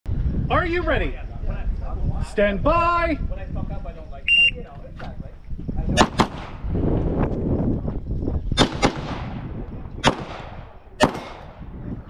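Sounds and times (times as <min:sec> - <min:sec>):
handgun shots with echo: 0:06.0 - 0:06.6, 0:08.6 - 0:09.4, 0:10.0 - 0:11.6.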